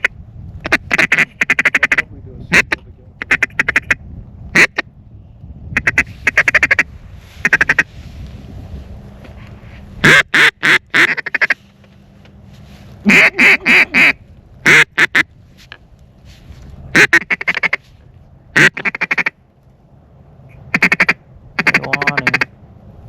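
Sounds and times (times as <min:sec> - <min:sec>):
duck call quacking: 0:00.0 - 0:04.8, 0:05.8 - 0:07.9, 0:10.0 - 0:11.6, 0:13.0 - 0:15.3, 0:16.9 - 0:17.8, 0:18.6 - 0:19.4, 0:20.5 - 0:22.5.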